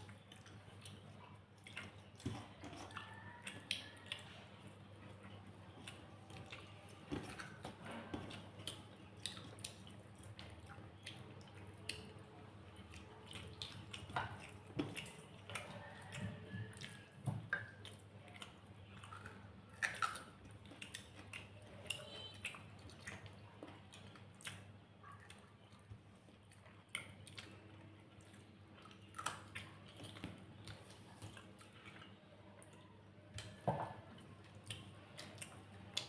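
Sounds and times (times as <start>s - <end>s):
faint low hum: 0.0s - 36.0s
mouth chewing food: 0.0s - 36.0s.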